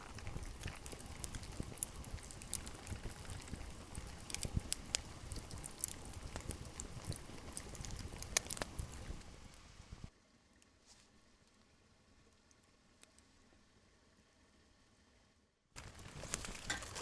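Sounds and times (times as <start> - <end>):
rain hiss: 0.0 - 10.1.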